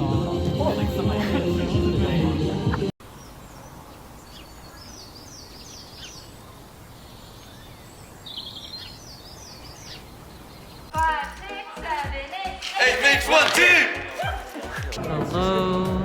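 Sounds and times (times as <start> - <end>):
songbird chirping: 3.0 - 15.0.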